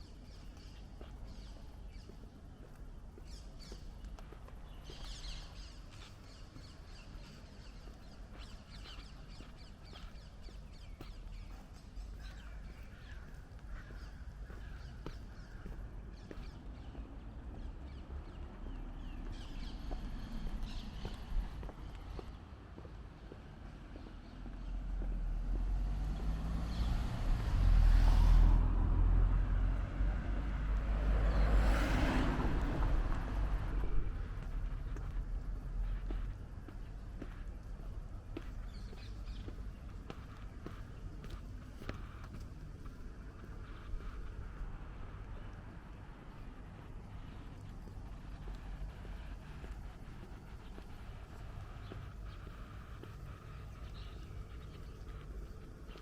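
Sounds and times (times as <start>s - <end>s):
cars driving past: 24.7s - 36.4s.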